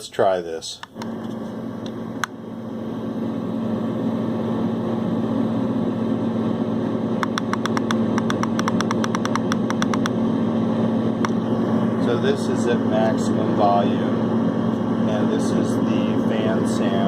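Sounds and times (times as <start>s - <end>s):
white noise machine fan rush: 0.9s - 17.0s
rapid sharp clicks: 7.2s - 10.2s.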